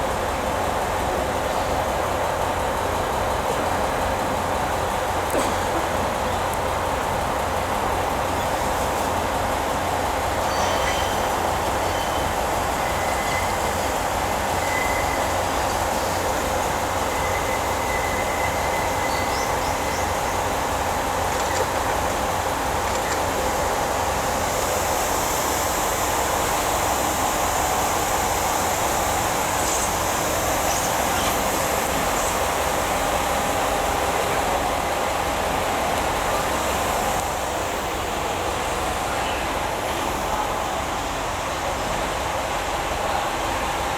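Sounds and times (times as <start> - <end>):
train running hum: 0.0 - 43.9
high wheel squeals: 8.3 - 24.4.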